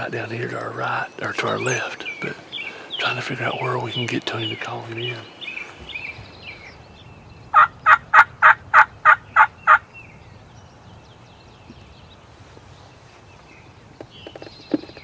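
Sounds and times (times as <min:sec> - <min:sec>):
turkey call yelps: 0:07.6 - 0:09.9.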